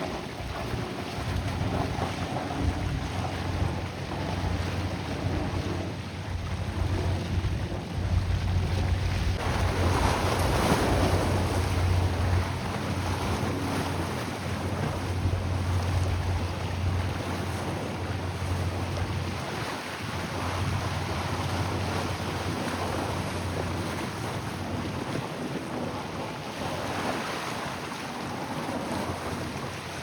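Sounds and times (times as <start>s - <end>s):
rushing water: 0.0s - 30.0s
wind buffeting microphone: 0.0s - 30.0s
low steady hum: 0.1s - 19.4s.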